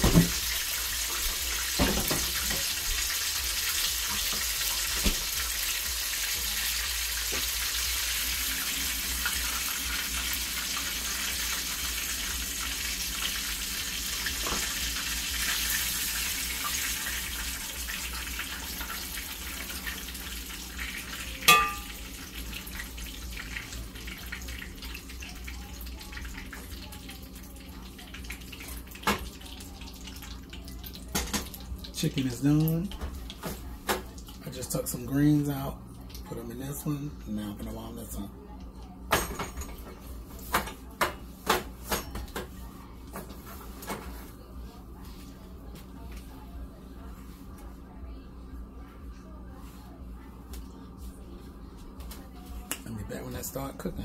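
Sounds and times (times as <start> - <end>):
chicken sizzling in hot oil: 0.0 - 35.7
ringing metal clank: 21.5 - 21.9.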